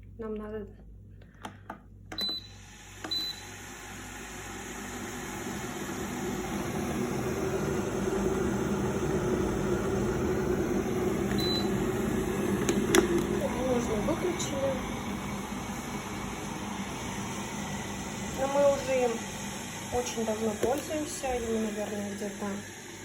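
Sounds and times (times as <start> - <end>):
kettle control panel beeps: 2.1 - 3.6, 11.2 - 12.0
kettle water rumbling to a boil: 3.8 - 23.0.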